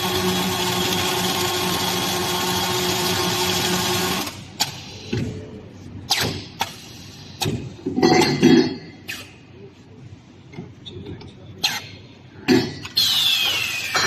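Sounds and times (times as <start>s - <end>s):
welding machine hiss and hum: 0.0s - 4.8s.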